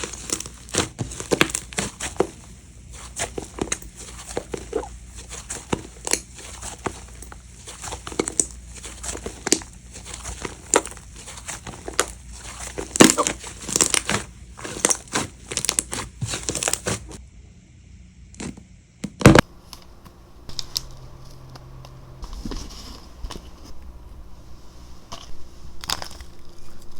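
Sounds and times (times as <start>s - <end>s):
slime squished by hand: 0.0s - 17.2s.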